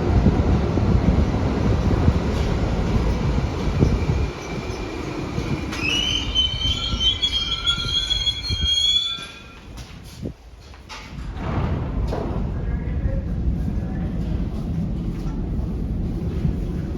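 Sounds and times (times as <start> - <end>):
subway train rumbling: 0.0 - 16.9
brakes squealing: 1.8 - 9.8.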